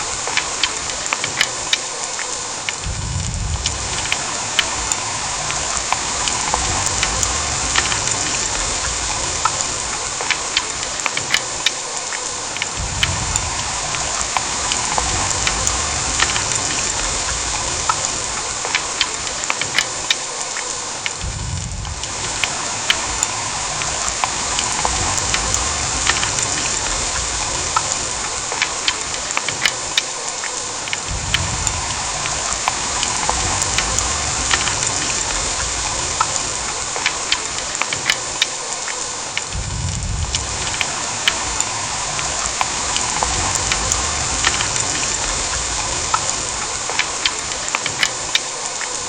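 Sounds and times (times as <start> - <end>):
heavy rain falling: 0.0 - 49.0
low rumble: 2.8 - 10.2, 12.7 - 18.6, 21.2 - 28.5, 39.5 - 46.9.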